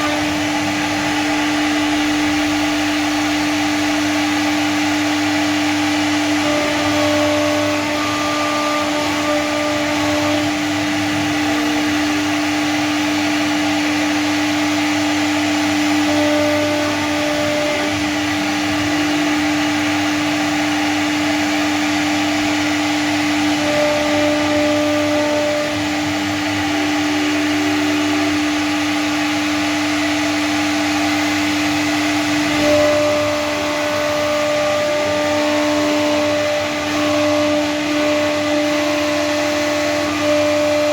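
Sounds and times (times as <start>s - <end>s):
router spindle whine: 0.0s - 40.9s.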